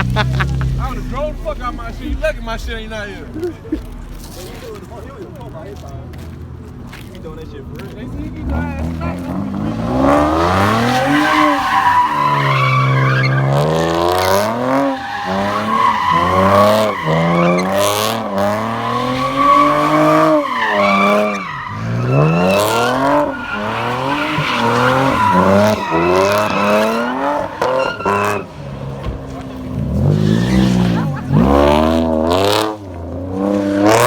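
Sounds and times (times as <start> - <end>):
car engine revving: 0.0 - 34.0
tyres squealing: 8.5 - 31.6.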